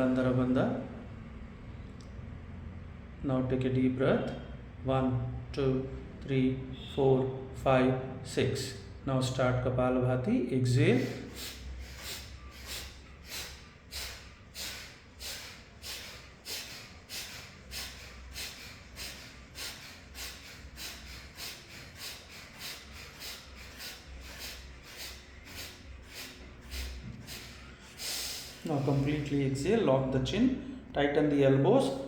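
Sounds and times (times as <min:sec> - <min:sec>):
forceful nasal exhalations: 0:10.8 - 0:29.4.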